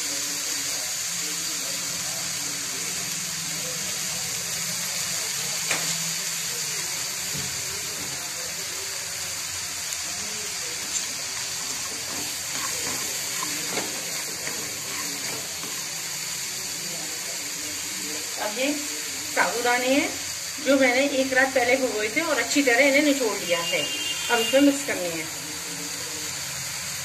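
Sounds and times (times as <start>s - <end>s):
food sizzling in a pan: 0.0s - 27.0s
spatula tapping and scraping pan: 11.7s - 15.9s.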